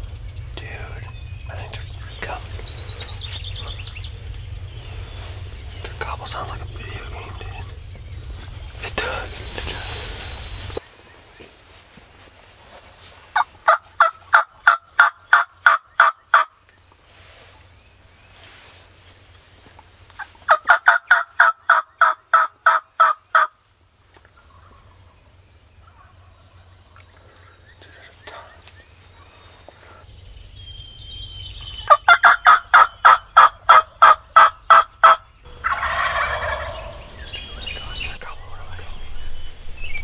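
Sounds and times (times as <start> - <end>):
turkey gobbling: 13.3 - 16.6, 20.1 - 23.6, 24.2 - 30.0, 31.6 - 38.9.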